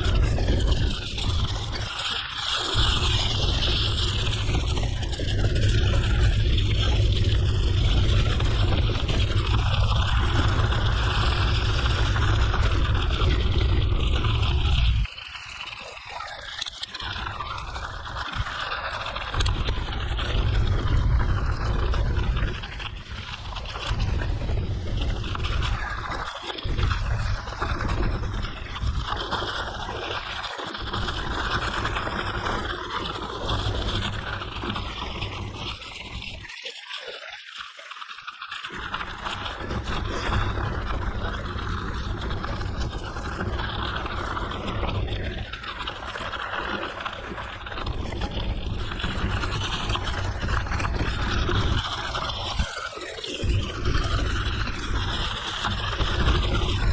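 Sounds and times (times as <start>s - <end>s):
wind buffeting microphone: 0.0s - 15.1s, 47.4s - 56.9s.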